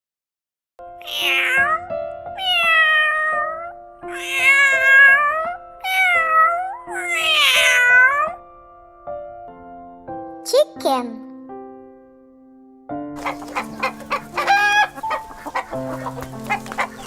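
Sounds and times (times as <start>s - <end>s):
background music: 0.8s - 17.0s
cat meowing: 1.0s - 8.4s.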